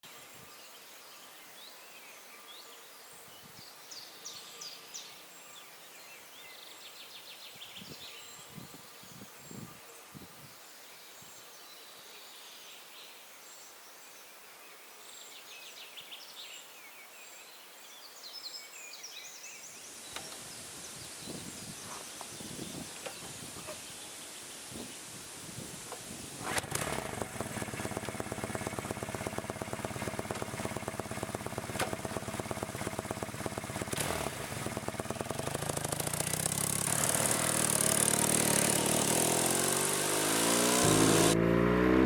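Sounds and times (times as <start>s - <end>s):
birds chirping and singing: 20.1s - 25.0s.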